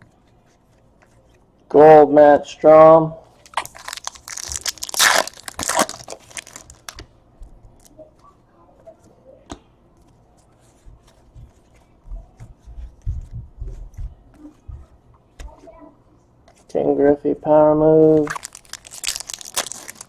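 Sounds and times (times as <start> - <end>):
foil wrapper tearing and crinkling: 3.4 - 7.0, 18.2 - 20.0.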